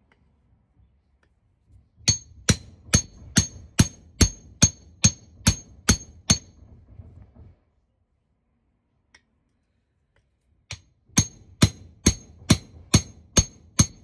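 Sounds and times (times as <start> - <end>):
hammer blows on metal: 2.1 - 6.6, 10.7 - 14.0.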